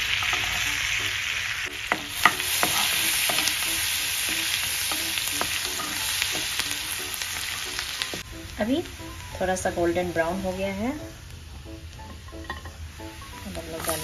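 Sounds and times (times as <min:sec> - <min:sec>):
wooden spatula stirring: 0:00.0 - 0:08.3
garlic sizzling in butter: 0:00.0 - 0:14.0.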